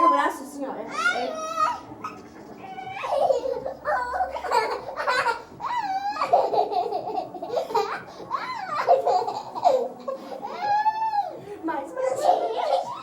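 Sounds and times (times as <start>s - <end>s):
toddler laughing and squealing: 0.9s - 11.4s.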